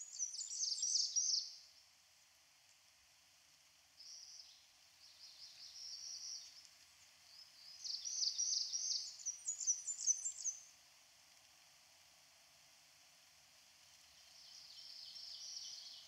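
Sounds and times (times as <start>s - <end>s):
songbird singing: 0.0s - 1.9s, 3.9s - 10.8s, 14.0s - 16.0s.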